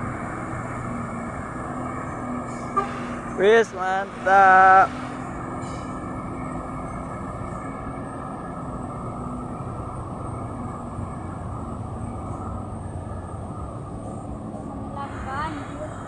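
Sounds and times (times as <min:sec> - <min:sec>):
truck diesel engine under load: 0:00.0 - 0:16.0.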